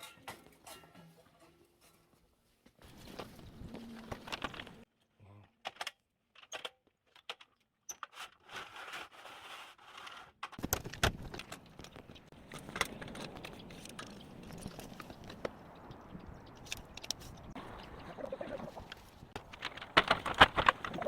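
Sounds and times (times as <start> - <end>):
parts scraping and rattling: 2.8 - 4.9, 5.6 - 15.6, 18.7 - 21.0.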